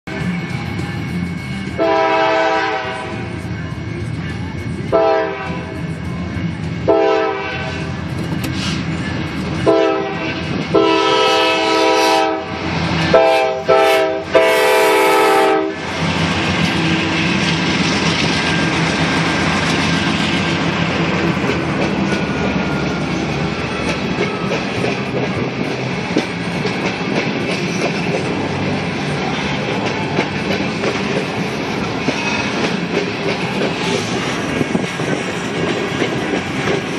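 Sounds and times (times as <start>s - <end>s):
train rumble and wheel clatter: 0.0s - 36.9s
locomotive air horn blasts: 1.7s - 3.3s, 4.9s - 5.7s, 6.9s - 7.9s, 9.6s - 15.8s.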